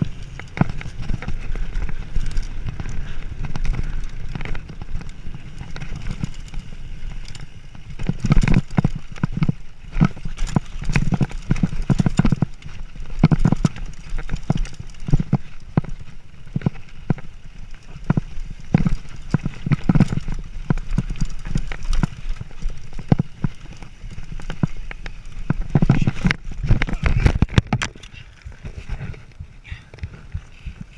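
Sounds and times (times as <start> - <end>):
mountain bike clattering on rock: 0.0 - 30.9
wind rumble on microphone: 0.0 - 30.9.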